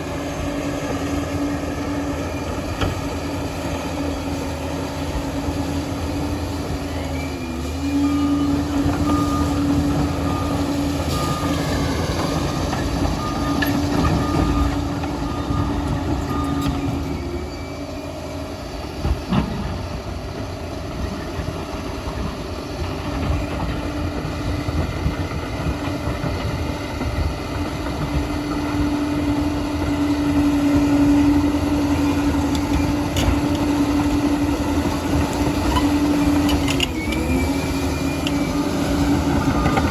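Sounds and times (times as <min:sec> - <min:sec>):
dozer diesel engine whining: 0:00.0 - 0:39.9
short beeps: 0:07.2 - 0:18.4.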